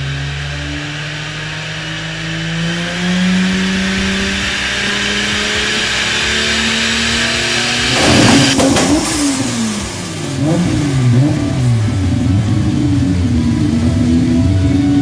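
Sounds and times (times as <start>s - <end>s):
car engine revving: 0.0s - 15.0s
sharp crack: 7.9s - 10.2s.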